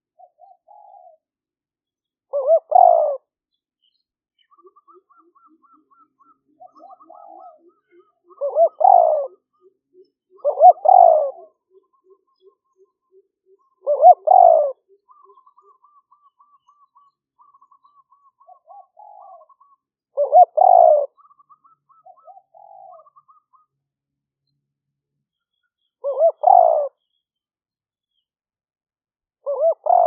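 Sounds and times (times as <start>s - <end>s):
dove cooing: 0.2s - 1.2s, 2.3s - 3.2s, 4.5s - 12.8s, 13.6s - 23.7s, 26.0s - 27.0s, 29.4s - 30.0s
bird trilling: 2.4s - 3.2s, 4.5s - 9.4s, 10.4s - 11.5s, 13.8s - 23.7s, 26.0s - 27.0s, 29.5s - 30.0s.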